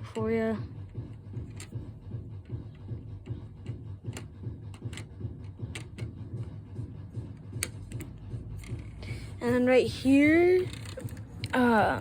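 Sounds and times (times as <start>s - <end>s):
steady low hum: 0.0s - 12.0s
plastic pieces clicking: 10.6s - 11.7s.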